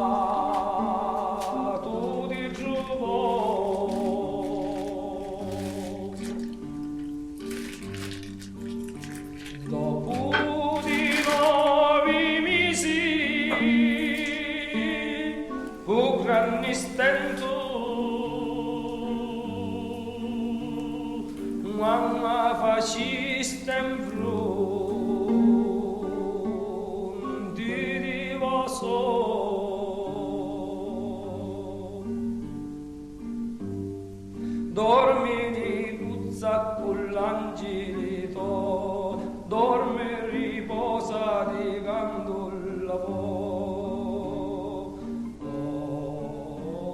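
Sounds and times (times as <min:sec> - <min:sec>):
operatic solo singing: 0:00.0 - 0:06.7, 0:09.7 - 0:32.2.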